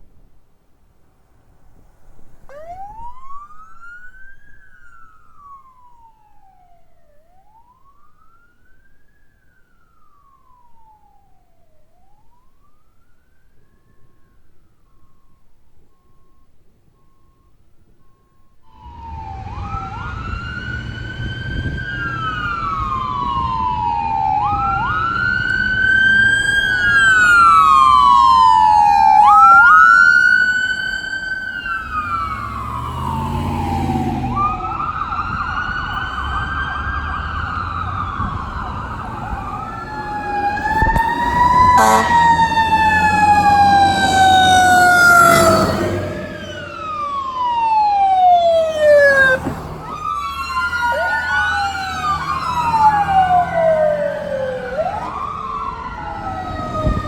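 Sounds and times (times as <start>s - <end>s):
emergency vehicle sirens wailing: 1.7s - 16.0s, 18.6s - 57.0s
low engine rumble: 30.4s - 57.0s.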